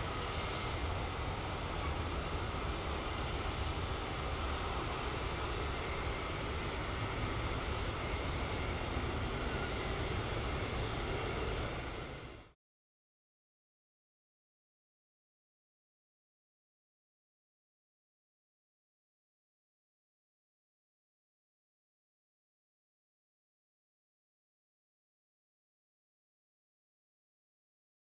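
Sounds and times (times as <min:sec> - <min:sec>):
airliner engines running: 0:00.0 - 0:12.6.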